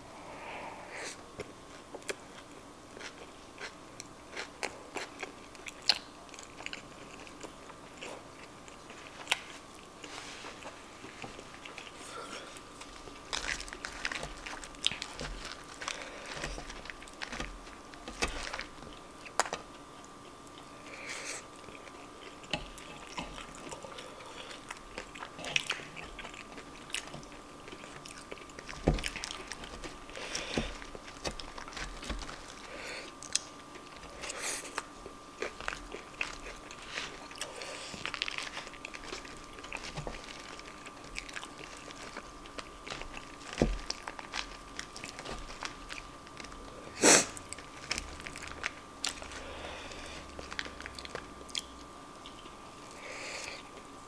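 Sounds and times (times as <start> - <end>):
faint steady hum: 0.0 - 54.0
chewing and crunching food: 1.3 - 54.0.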